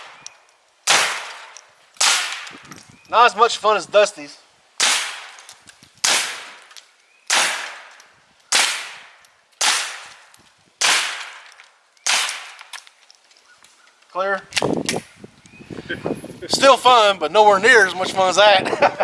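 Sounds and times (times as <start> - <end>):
pistol shots: 0.9 - 2.5, 4.8 - 5.4, 6.0 - 6.7, 7.3 - 10.2, 10.8 - 12.6.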